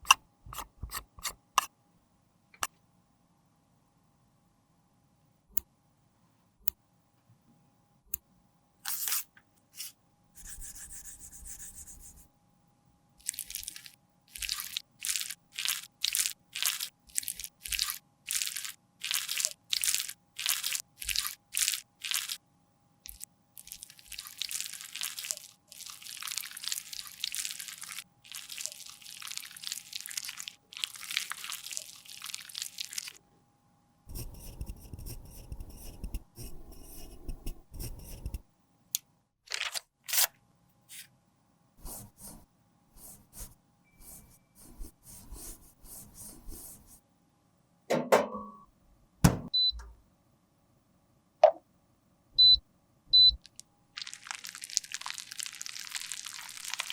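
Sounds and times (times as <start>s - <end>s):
tool scraping concealer: 0.0s - 1.7s.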